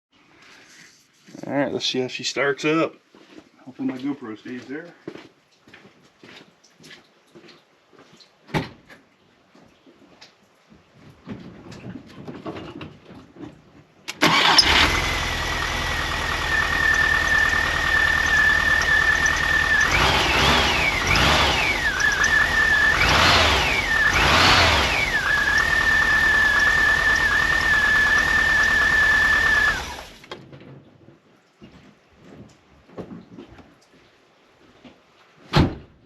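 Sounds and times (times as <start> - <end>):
van engine starting: 14.1 - 30.4
engine idling: 14.2 - 30.3
engine revving: 14.2 - 30.3
thin high engine whine: 14.2 - 30.3.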